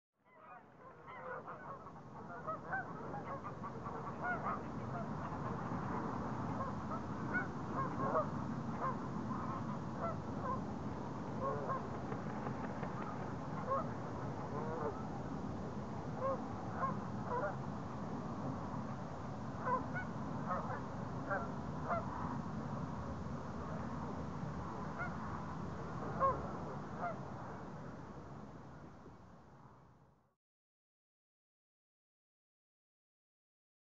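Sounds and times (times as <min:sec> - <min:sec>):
steady low background noise: 0:00.2 - 0:30.3
geese honking: 0:00.4 - 0:05.6, 0:06.6 - 0:10.6, 0:11.4 - 0:11.9, 0:13.0 - 0:13.9, 0:14.5 - 0:15.0.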